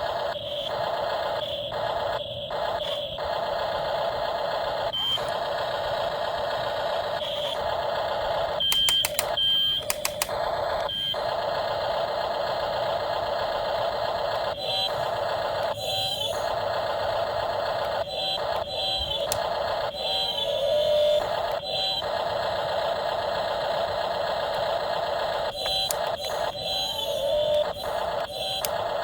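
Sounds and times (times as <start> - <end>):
remote-control toy whirring: 0.0 - 29.0
clicks: 8.6 - 10.5, 17.8 - 19.6, 25.4 - 29.0.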